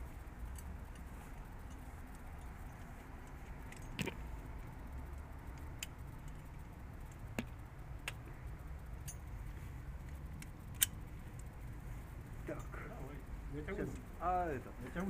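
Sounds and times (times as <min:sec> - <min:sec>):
sharp clicks: 0:10.0 - 0:11.5.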